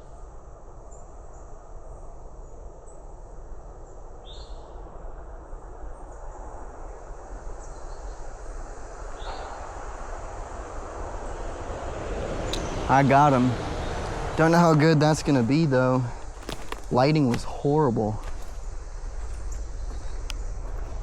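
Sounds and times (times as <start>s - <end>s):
low outdoor rumble: 8.4s - 21.0s.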